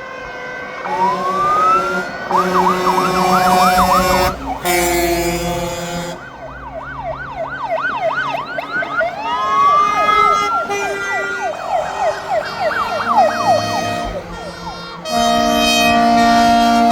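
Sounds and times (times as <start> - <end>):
fire engine siren wail: 0.0 - 16.9
horn blast: 0.4 - 6.4, 9.4 - 16.9
fast siren yelp: 0.8 - 16.9.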